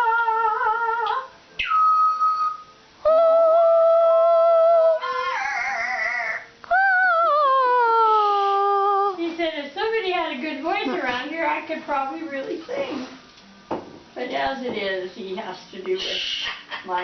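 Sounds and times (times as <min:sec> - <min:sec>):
parrot singing whistle-like notes: 0:01.5 - 0:06.6.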